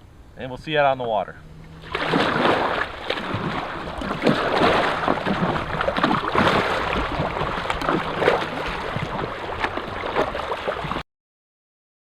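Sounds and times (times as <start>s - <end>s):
water lapping and splashing: 1.0s - 11.0s
wind noise on microphone: 1.8s - 11.0s.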